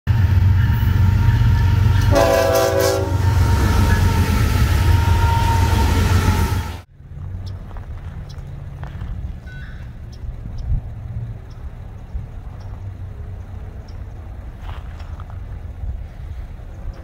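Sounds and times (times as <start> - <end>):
train horn blast: 0.1 - 6.9
diesel locomotive rumbling past: 0.1 - 17.0.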